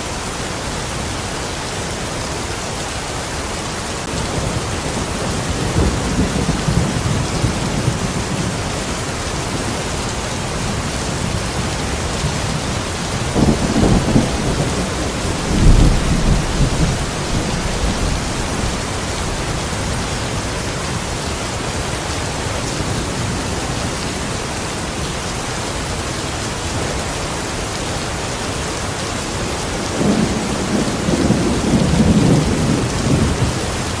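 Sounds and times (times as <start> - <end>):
rain falling: 0.0 - 34.0
thunder rumbles: 4.1 - 20.1, 29.8 - 34.0.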